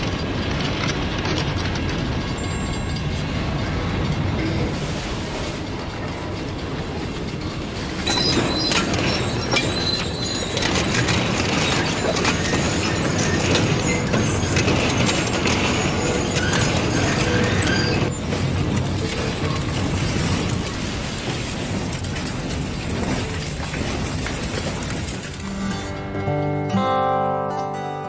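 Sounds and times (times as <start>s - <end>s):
boxcars rumbling past: 0.0s - 26.8s
high metal screeching: 8.0s - 18.2s.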